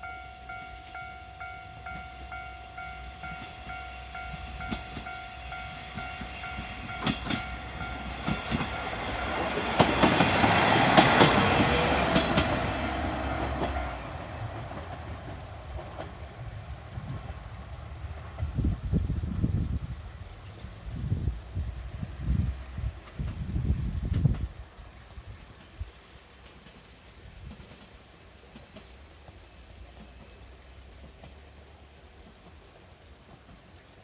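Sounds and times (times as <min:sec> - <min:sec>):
level crossing warning bell: 0:00.0 - 0:14.5
wheels clacking over rail joints: 0:00.0 - 0:21.3, 0:22.2 - 0:34.0
diesel train passing: 0:00.0 - 0:34.0.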